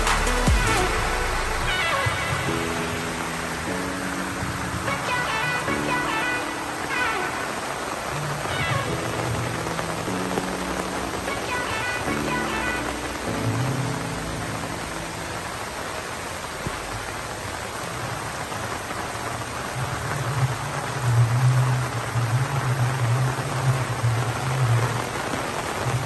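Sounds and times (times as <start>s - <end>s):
background music: 0.0s - 17.5s
rain on leaves: 0.0s - 26.0s.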